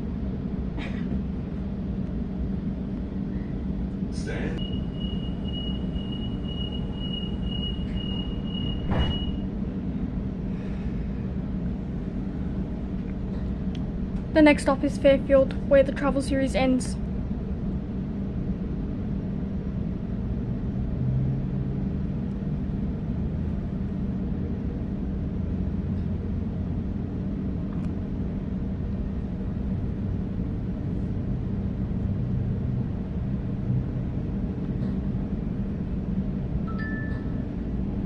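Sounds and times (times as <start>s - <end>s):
low hum of train drive: 0.0s - 38.0s.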